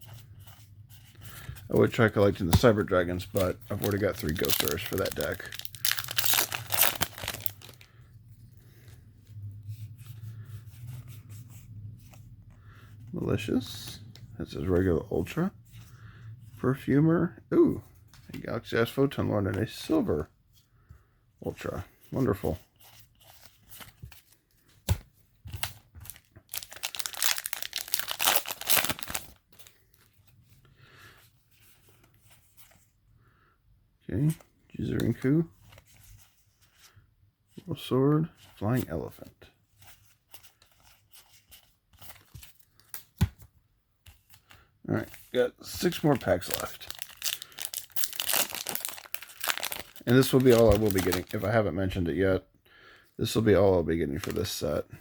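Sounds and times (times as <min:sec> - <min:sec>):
trading cards rustling and clicking: 0:00.1 - 0:08.0, 0:21.5 - 0:30.4, 0:38.4 - 0:43.4, 0:44.0 - 0:51.6, 0:54.1 - 0:54.7
foil wrapper tearing and crinkling: 0:03.3 - 0:07.8, 0:26.1 - 0:29.4, 0:46.4 - 0:51.4.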